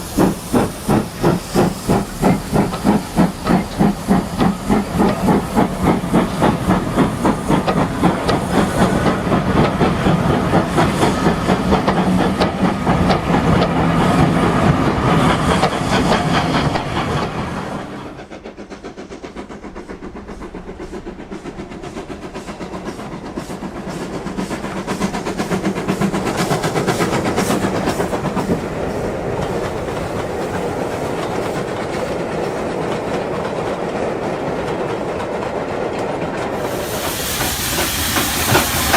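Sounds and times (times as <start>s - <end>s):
rail clatter: 0.0s - 38.9s
steam locomotive exhaust beat: 0.0s - 38.9s.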